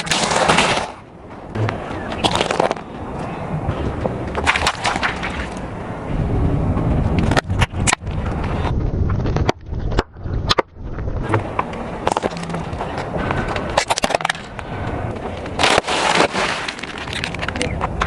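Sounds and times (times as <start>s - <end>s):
objects crackling under tyre: 0.0s - 18.0s
tyre rolling rumble: 5.6s - 18.0s.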